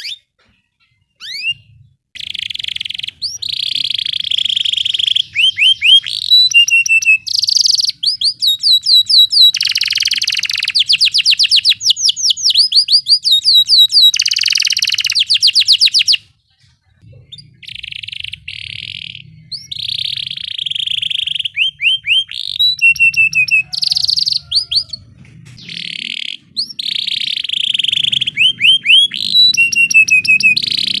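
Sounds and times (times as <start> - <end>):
canary singing trills: 0.0 - 31.0.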